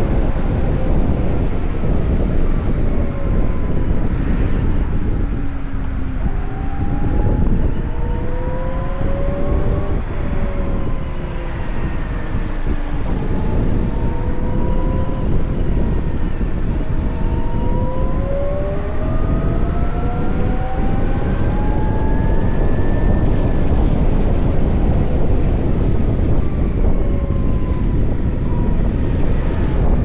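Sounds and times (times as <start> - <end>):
electric motor whine: 0.0 - 24.4
wind buffeting microphone: 0.0 - 30.0.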